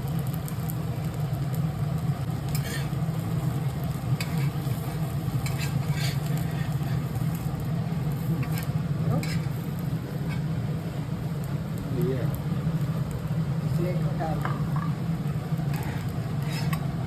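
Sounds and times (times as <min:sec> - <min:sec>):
faint sizzle on a griddle: 0:00.0 - 0:17.0
steady low hum: 0:00.0 - 0:17.0
spatula scraping and tapping griddle: 0:02.4 - 0:07.5, 0:08.1 - 0:10.6, 0:15.6 - 0:17.0.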